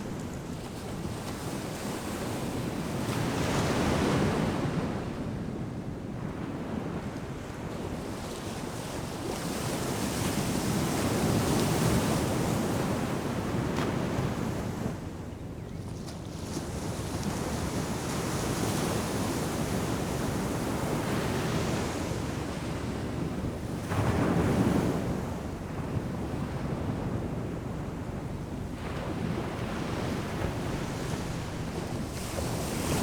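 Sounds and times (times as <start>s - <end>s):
ocean surf breaking on beach: 28.8s - 33.0s.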